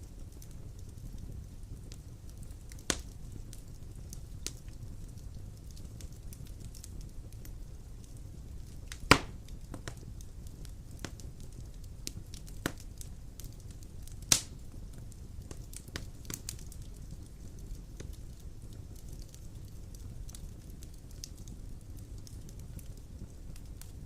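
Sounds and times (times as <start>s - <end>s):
fire crackling in fireplace: 0.0s - 24.0s
sharp loud fire pops: 9.1s - 9.4s.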